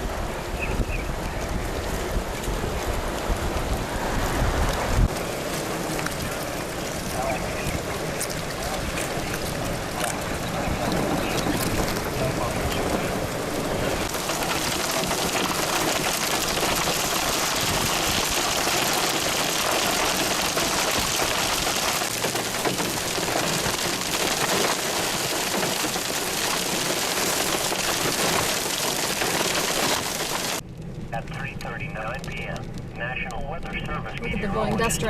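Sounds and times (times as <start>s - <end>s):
heavy rain pelting down: 0.0s - 35.0s.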